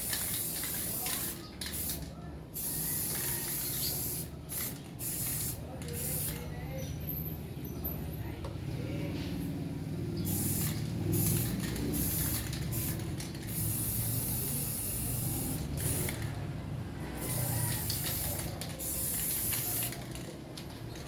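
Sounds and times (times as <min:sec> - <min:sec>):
spray-like hiss: 0:17.2 - 0:20.0.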